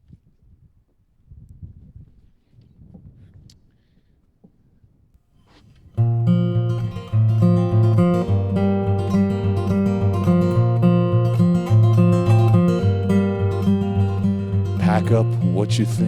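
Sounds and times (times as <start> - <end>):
acoustic guitar strumming: 6.0 - 16.0.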